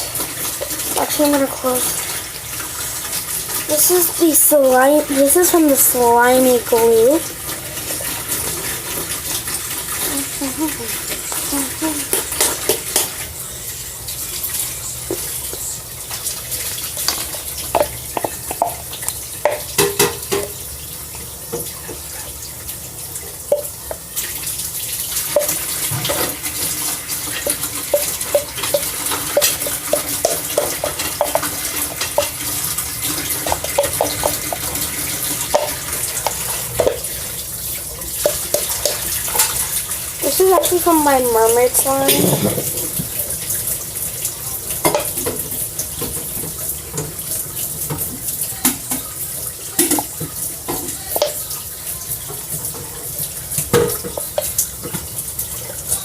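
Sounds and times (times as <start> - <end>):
running water hiss: 0.0 - 56.0
slime being stirred: 25.3 - 37.1.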